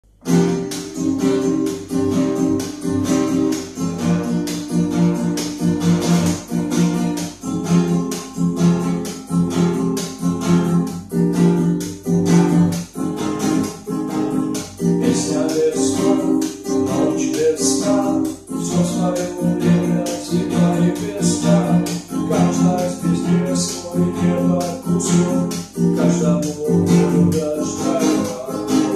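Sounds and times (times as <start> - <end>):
acoustic guitar strumming: 0.0 - 28.9.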